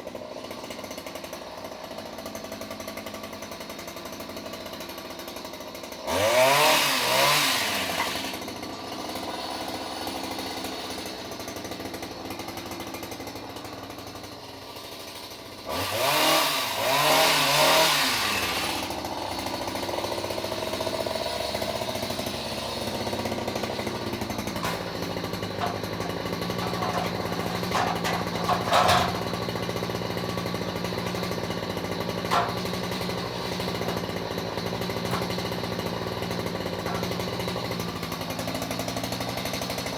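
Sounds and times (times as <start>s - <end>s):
chainsaw revving and idling: 0.0s - 39.9s
sharp knocks: 32.2s - 33.0s.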